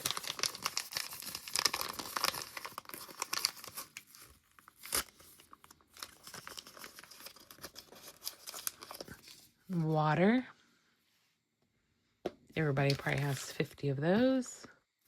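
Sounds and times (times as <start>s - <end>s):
plastic wrapper crinkling: 0.0s - 9.6s, 12.8s - 13.8s.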